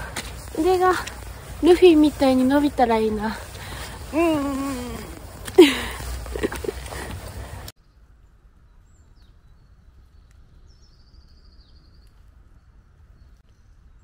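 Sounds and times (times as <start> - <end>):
wind and handling noise on microphone: 0.0 - 8.2.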